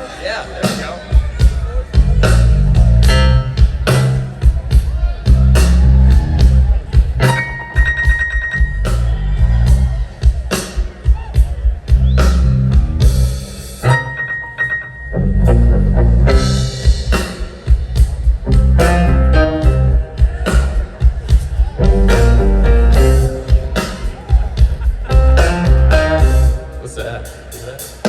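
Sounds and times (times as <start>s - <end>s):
live blues band: 0.0s - 28.0s
electric guitar: 5.4s - 9.7s, 13.8s - 17.4s, 18.4s - 20.8s, 21.8s - 26.8s
drum hits: 16.3s - 27.2s.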